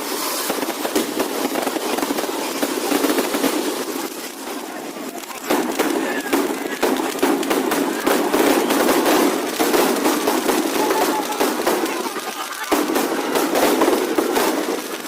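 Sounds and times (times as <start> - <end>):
firecrackers cracking: 0.0 - 15.0.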